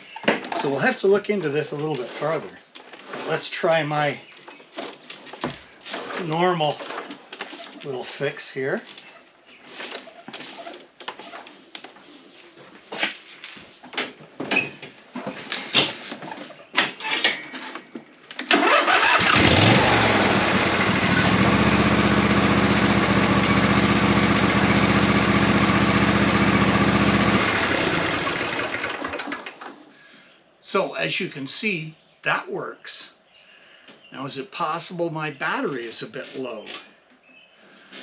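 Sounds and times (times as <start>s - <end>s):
lawn tractor engine running: 18.5s - 29.8s.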